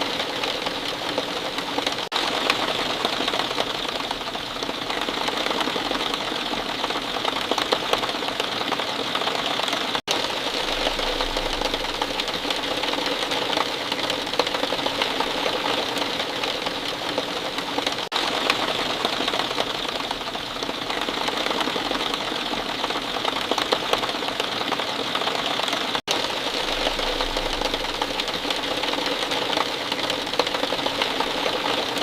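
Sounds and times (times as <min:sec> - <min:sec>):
rain pattering: 0:00.0 - 0:32.0.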